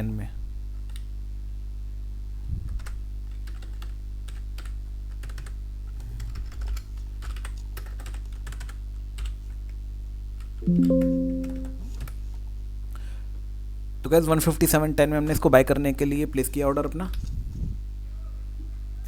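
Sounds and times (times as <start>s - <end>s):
keyboard typing and clicks: 10.6s - 11.8s
loud pitched musical tone: 10.6s - 11.8s.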